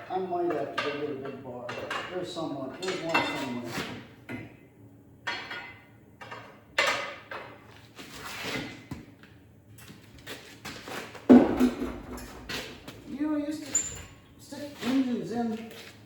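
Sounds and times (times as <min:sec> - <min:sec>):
sharp metallic knock: 0:11.3 - 0:13.2
metal tools clanking and scraping: 0:11.4 - 0:14.2.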